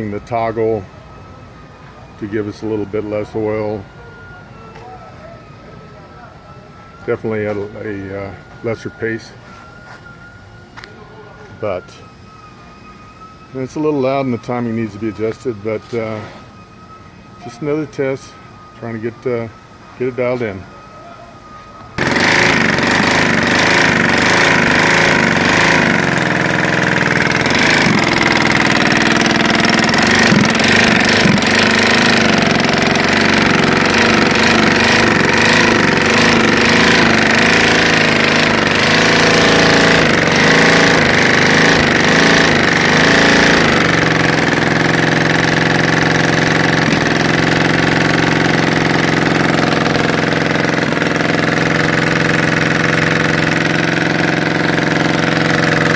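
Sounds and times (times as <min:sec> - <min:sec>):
engine running without muffler: 0:21.8 - 0:55.9.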